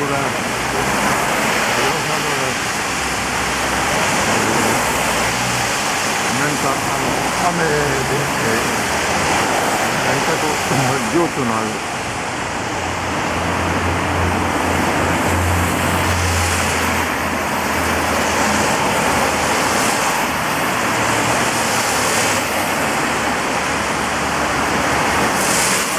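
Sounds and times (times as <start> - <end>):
car tyres swishing through water: 0.0 - 25.9
rain on wet street: 0.0 - 25.9.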